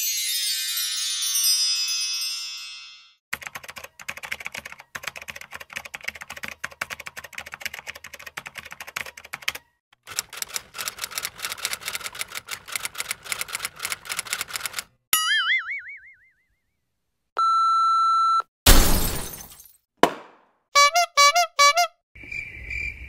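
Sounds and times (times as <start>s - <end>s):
keyboard typing clicks: 3.4s - 14.8s.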